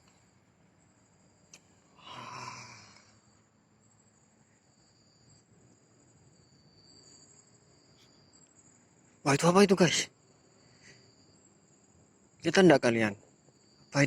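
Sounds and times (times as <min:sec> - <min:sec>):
crickets chirring: 0:00.0 - 0:14.0
breathy rush: 0:02.0 - 0:03.2.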